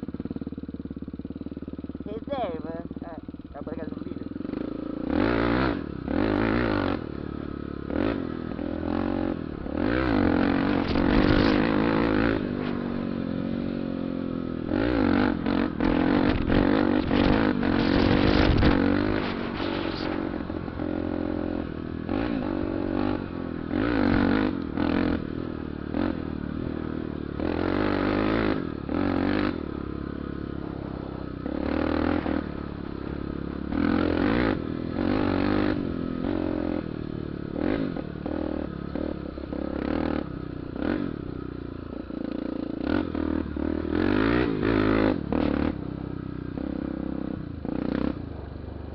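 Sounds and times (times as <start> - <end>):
motorcycle engine revving: 0.0 - 48.9
rushing rattling noise: 15.8 - 20.6.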